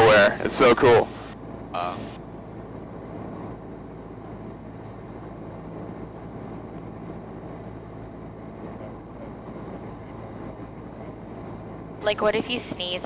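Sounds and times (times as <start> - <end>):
airplane engine and propeller drone: 0.0 - 13.0.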